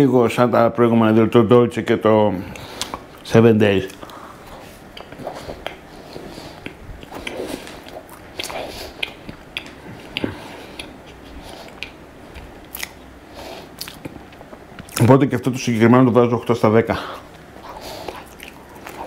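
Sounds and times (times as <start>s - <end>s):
person chewing food: 2.5s - 3.2s, 3.8s - 15.1s, 17.1s - 19.0s.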